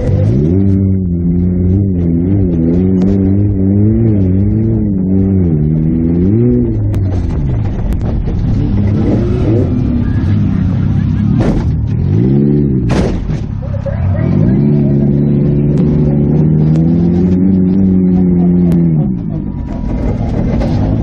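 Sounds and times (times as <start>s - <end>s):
car engine revving: 0.0s - 21.0s
loud bang: 11.2s - 12.0s, 12.8s - 13.7s.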